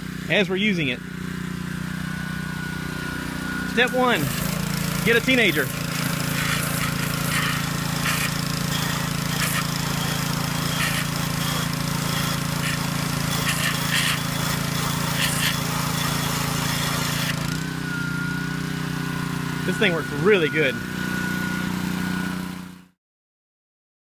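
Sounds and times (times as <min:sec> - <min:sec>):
pressure washer engine running: 0:00.0 - 0:23.0
high-pressure water jet hissing: 0:03.6 - 0:22.3.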